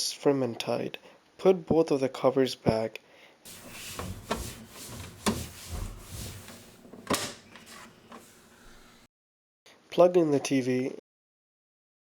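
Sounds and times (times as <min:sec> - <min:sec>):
plastic covers rubbing and scraping: 0:03.5 - 0:09.1.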